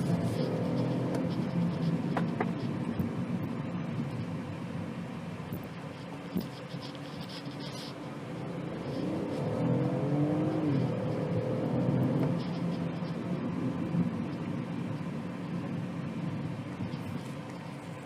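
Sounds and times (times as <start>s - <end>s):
car engine accelerating: 8.2s - 17.1s.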